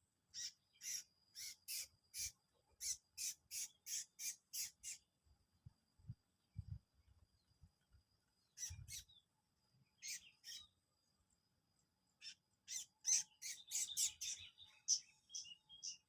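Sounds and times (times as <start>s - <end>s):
bird giving sharp high chirps: 0.4s - 5.0s, 10.0s - 10.7s, 12.2s - 16.0s.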